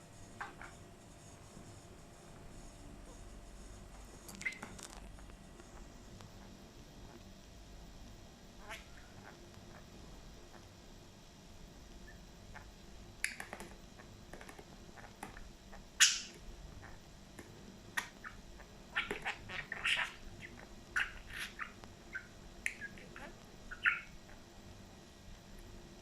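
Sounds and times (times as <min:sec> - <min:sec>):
budgerigar chirping and squawking: 0:08.6 - 0:09.8, 0:16.0 - 0:17.0, 0:18.0 - 0:24.4.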